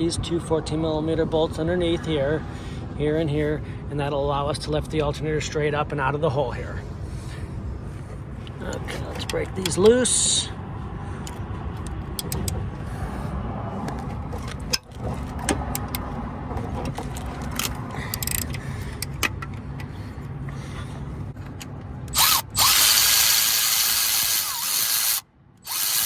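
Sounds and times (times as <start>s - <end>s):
power tool spinning bolt: 22.1s - 26.0s
wrench ratchet clicking: 22.1s - 26.0s.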